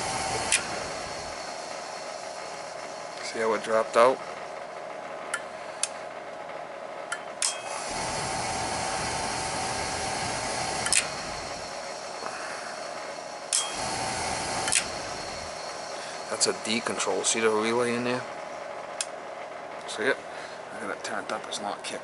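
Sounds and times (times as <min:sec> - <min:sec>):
electrical-mechanical hum: 0:00.0 - 0:22.0
boiler control clicking: 0:00.4 - 0:00.8, 0:10.6 - 0:11.3, 0:13.5 - 0:15.3, 0:19.0 - 0:19.2.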